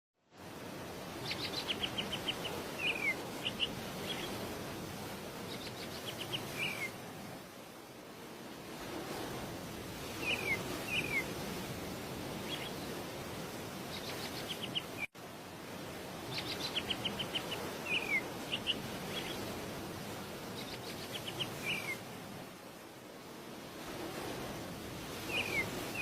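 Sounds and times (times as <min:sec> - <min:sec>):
outdoor background noise: 0:00.2 - 0:26.0
bird chirping: 0:01.3 - 0:04.3, 0:10.2 - 0:11.2, 0:16.3 - 0:19.4.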